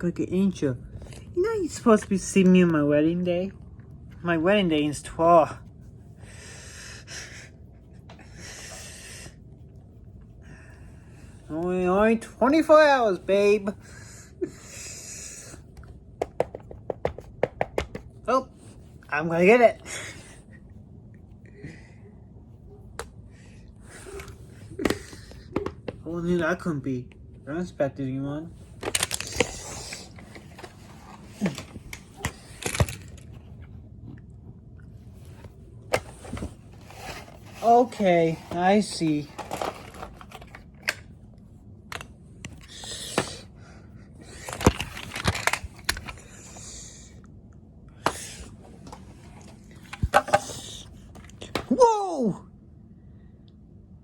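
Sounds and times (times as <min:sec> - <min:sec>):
sharp clicks and taps: 0:16.2 - 0:18.1
rustling and scraping: 0:28.5 - 0:43.5, 0:44.2 - 0:47.1, 0:48.0 - 0:51.7.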